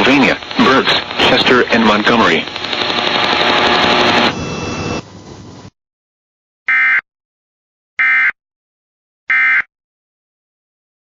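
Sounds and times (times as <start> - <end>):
radio hiss: 0.0 - 5.1.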